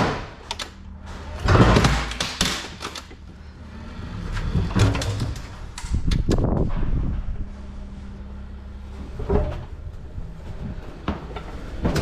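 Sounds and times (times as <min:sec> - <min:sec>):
pallet rattling and scraping: 0:01.0 - 0:03.2, 0:08.9 - 0:12.0.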